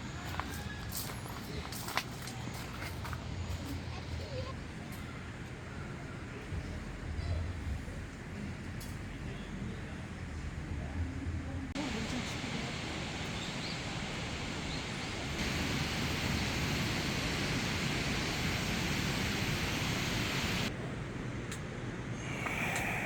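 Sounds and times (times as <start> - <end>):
mountain stream rushing: 11.8 - 20.7.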